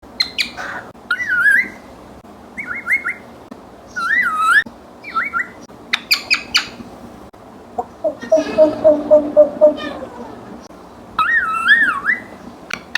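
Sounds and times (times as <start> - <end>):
parrot whistling: 7.8 - 10.4.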